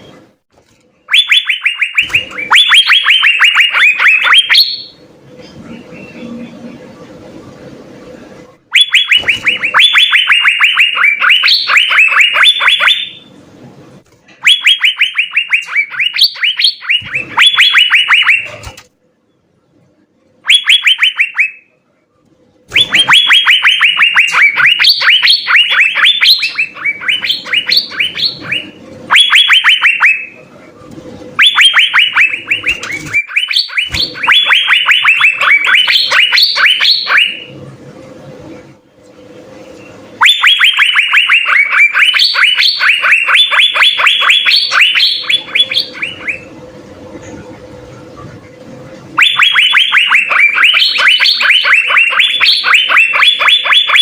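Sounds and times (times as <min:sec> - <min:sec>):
bird whistling rapid notes: 0:01.1 - 0:05.0, 0:08.7 - 0:13.3, 0:14.4 - 0:18.7, 0:22.7 - 0:30.4, 0:31.4 - 0:37.5, 0:40.2 - 0:46.5, 0:49.2 - 0:54.0.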